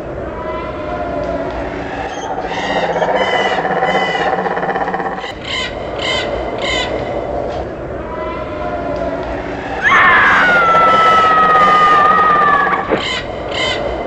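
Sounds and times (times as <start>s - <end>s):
harsh bird squawks: 9.8s - 13.2s.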